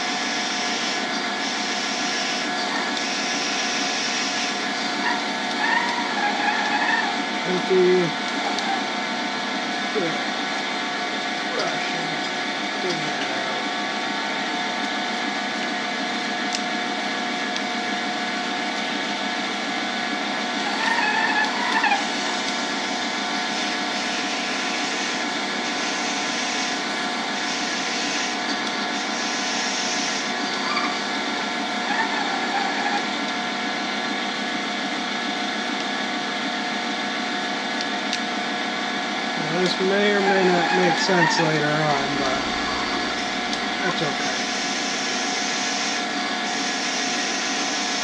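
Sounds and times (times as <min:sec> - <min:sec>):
drill boring into wood: 0:00.0 - 0:08.9, 0:20.3 - 0:33.1, 0:39.4 - 0:48.0
lathe running: 0:00.0 - 0:48.0.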